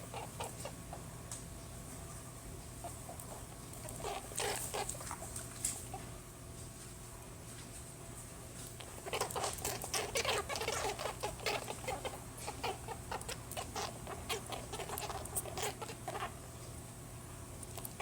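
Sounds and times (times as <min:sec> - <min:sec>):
rabbit making short noises: 0:08.7 - 0:16.4.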